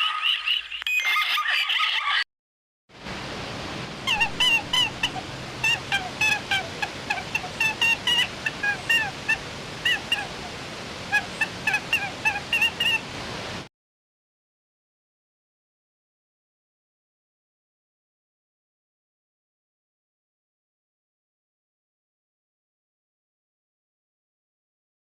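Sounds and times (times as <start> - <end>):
steady hiss: 3.0 - 13.7
bird calls: 4.1 - 13.1.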